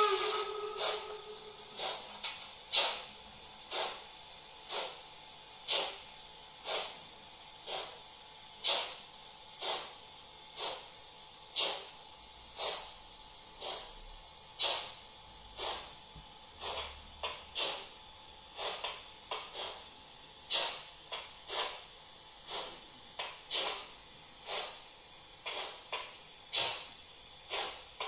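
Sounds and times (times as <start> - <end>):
hissing steam puffs: 0.0 - 5.0, 5.6 - 6.0, 6.6 - 8.0, 8.6 - 9.0, 9.6 - 10.9, 11.5 - 12.0, 12.6 - 13.0, 13.6 - 14.0, 14.6 - 15.0, 15.6 - 16.0, 16.6 - 21.8, 22.4 - 28.0.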